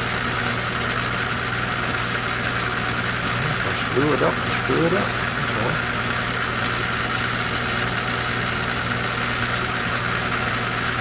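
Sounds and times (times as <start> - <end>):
light ticking: 1.0 - 5.8
small lathe running: 1.0 - 5.8.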